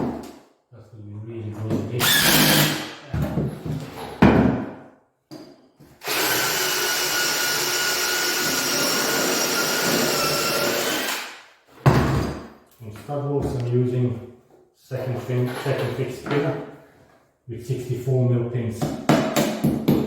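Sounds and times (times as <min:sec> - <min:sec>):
power tool motor whining: 0:02.0 - 0:02.8.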